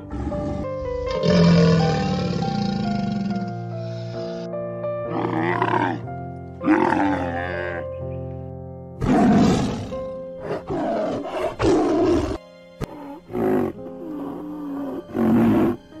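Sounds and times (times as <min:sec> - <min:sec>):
tiger roaring: 0:00.0 - 0:03.6, 0:05.1 - 0:06.0, 0:06.6 - 0:07.8, 0:09.0 - 0:15.8
background music: 0:00.0 - 0:16.0
camel bellowing and grunting: 0:05.1 - 0:06.0, 0:06.6 - 0:07.9, 0:09.0 - 0:15.8.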